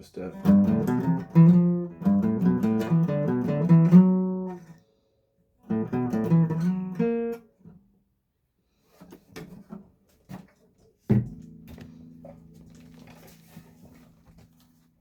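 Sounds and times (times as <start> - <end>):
acoustic guitar strumming chords: 0.3 - 4.8, 5.6 - 7.4
faint taps and knocks: 9.0 - 14.8.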